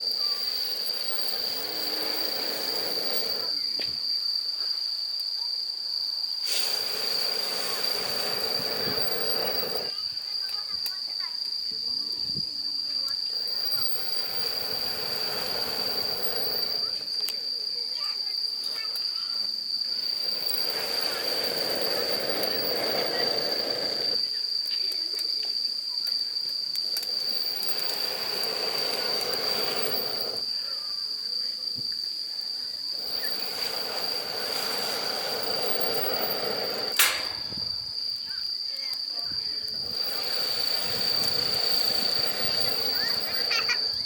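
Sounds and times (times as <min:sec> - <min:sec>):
high-pitched insect call: 0:00.0 - 0:44.0
air blown through a pipe: 0:06.4 - 0:09.9, 0:13.4 - 0:17.0, 0:27.2 - 0:30.5, 0:33.0 - 0:38.0, 0:39.7 - 0:44.0
sharp click: 0:36.9 - 0:37.8.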